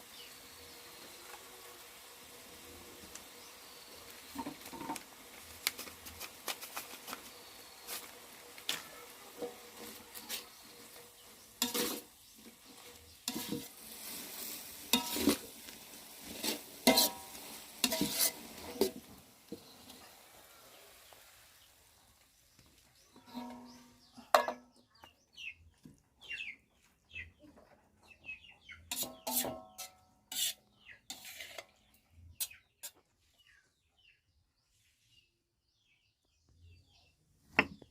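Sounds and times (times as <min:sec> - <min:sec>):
food sizzling in oil: 0:00.0 - 0:22.1
metal spatula scraping a pan: 0:07.8 - 0:20.1, 0:23.1 - 0:24.6, 0:28.8 - 0:33.0.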